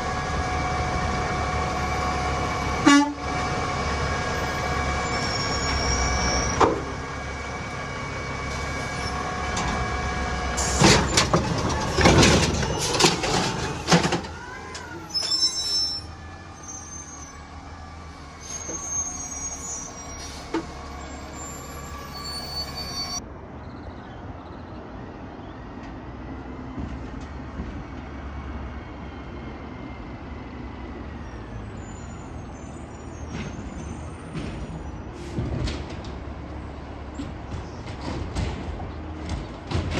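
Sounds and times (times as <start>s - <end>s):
truck clatter: 0.0s - 16.9s, 33.2s - 39.9s
garbage truck engine rumble: 0.0s - 23.2s, 25.6s - 39.9s.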